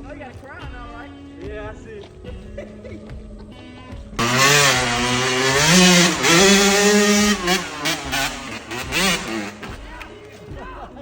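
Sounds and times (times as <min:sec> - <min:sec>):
dirt bike engine revving: 0:04.2 - 0:10.2.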